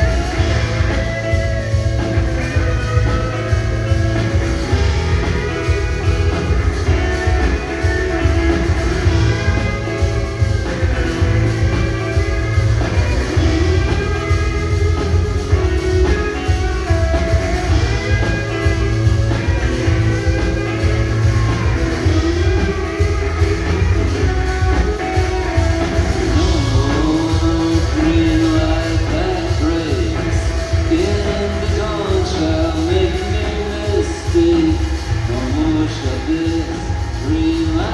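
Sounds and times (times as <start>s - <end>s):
rock band playing live: 0.0s - 37.9s.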